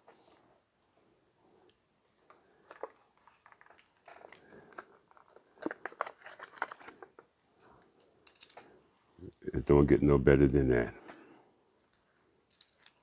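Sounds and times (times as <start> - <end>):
handling clicks and crackles: 1.6 - 8.8, 11.9 - 13.0.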